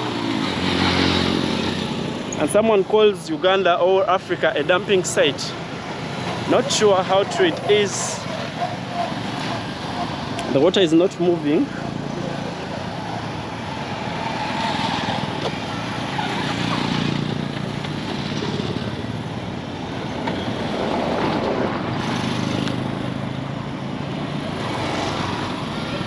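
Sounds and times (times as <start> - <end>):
vehicles passing: 0.0 - 26.0.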